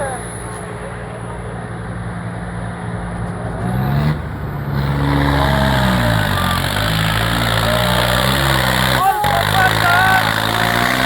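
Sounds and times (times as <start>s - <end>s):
tractor diesel engine revving: 3.0s - 11.0s.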